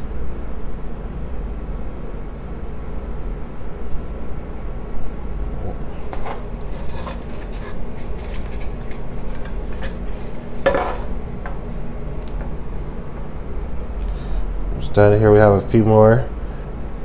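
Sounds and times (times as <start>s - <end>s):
steady low hum: 0.0s - 17.0s
scrape in baking dish: 5.9s - 11.8s
hands working dough in a dish: 6.0s - 12.5s.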